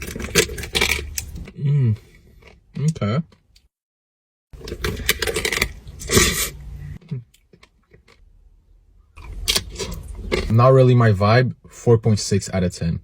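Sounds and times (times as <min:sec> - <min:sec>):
crunching pastry shell: 0:04.6 - 0:06.2.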